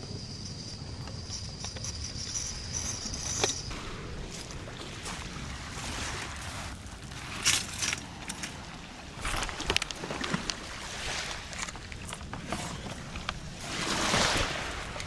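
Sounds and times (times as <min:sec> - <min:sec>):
sea waves washing onto beach: 0:03.7 - 0:15.0.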